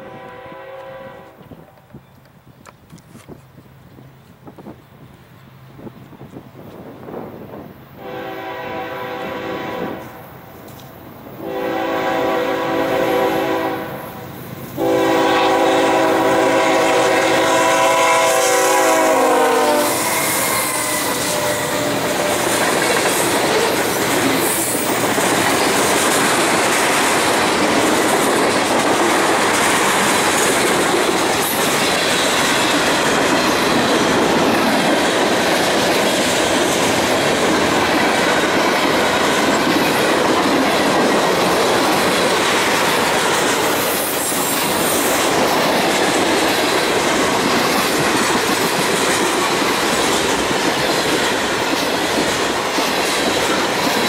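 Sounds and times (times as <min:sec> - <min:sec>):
freight train wheels clattering: 0:14.7 - 0:54.0.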